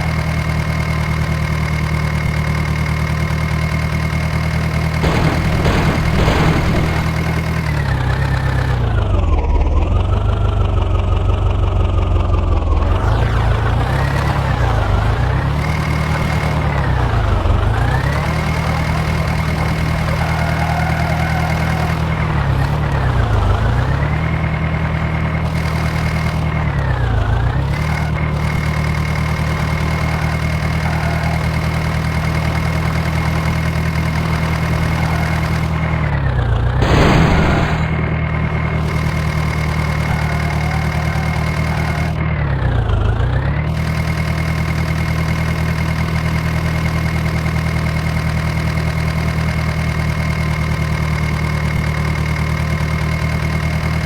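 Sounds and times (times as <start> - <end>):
tractor diesel engine running: 0.0 - 54.0
short loud burst of noise: 5.0 - 7.8, 36.8 - 39.6.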